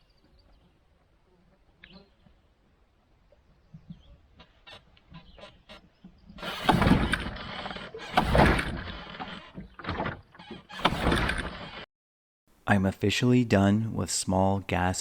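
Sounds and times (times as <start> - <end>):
recoil starter pulls: 6.4 - 11.8.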